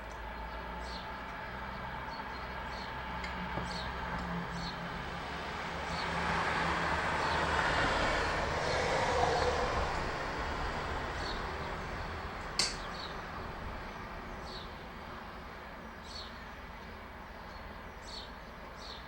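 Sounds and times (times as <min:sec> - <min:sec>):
small birds chirping: 0:00.0 - 0:04.8, 0:11.2 - 0:13.2, 0:16.0 - 0:19.0
vehicle passing: 0:01.6 - 0:13.9
sharp click: 0:12.6 - 0:12.9.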